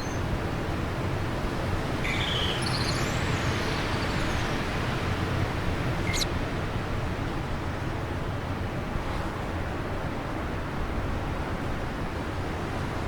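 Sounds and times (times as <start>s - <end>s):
birdsong chirps: 0.0s - 0.5s, 1.4s - 6.3s
bird sharp high call: 2.0s - 4.7s.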